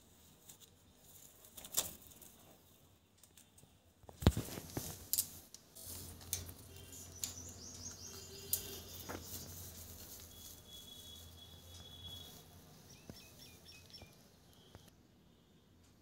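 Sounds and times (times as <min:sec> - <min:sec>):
bird chirping: 0:06.4 - 0:14.9
bird whistle: 0:10.3 - 0:14.1.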